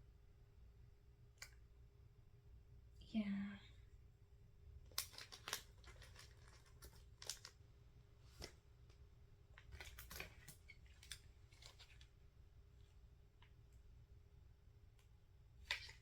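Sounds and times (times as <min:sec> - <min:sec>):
packaging rustling: 0:04.9 - 0:07.6.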